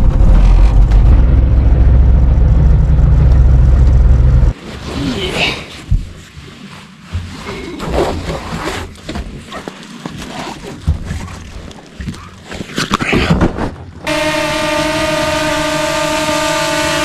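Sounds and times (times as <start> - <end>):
motor drone with high whine: 0.0 - 4.6, 14.1 - 17.0.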